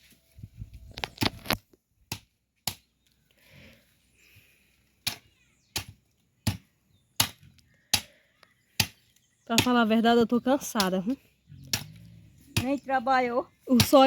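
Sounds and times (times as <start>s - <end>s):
blade chopping firewood: 1.1s - 3.2s, 5.0s - 10.0s.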